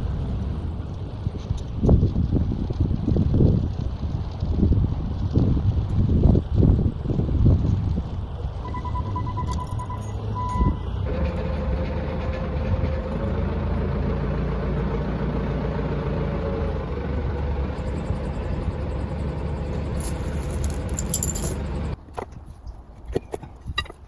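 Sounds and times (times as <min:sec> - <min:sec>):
machine engine rumbling: 0:00.0 - 0:22.4
steady whine: 0:16.4 - 0:22.0.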